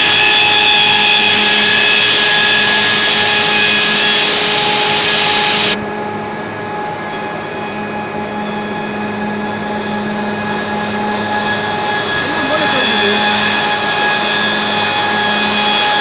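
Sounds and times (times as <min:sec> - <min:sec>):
loud cutting hiss: 0:00.0 - 0:05.8, 0:07.1 - 0:16.0
machine motor hum: 0:00.0 - 0:05.8.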